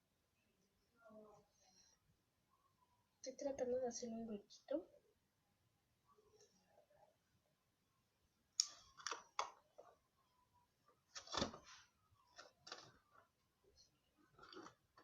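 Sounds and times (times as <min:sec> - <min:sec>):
plastic container clicks and scrapes: 0:14.4 - 0:15.0.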